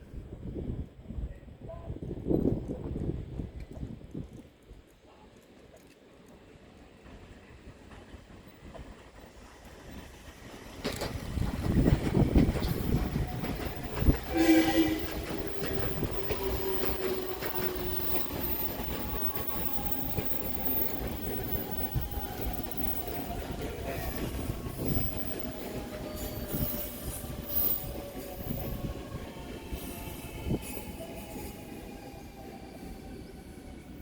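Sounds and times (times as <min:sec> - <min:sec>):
wheels rumbling on rails: 0:05.6 - 0:29.4
train motor whine: 0:10.8 - 0:28.7
train horn toot: 0:14.0 - 0:18.2.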